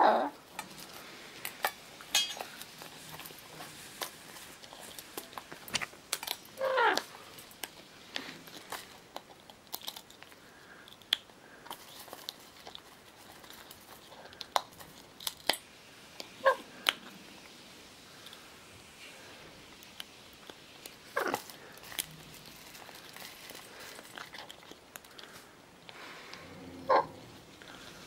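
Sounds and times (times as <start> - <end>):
parrot squawk: 6.6 - 7.1, 26.9 - 27.1.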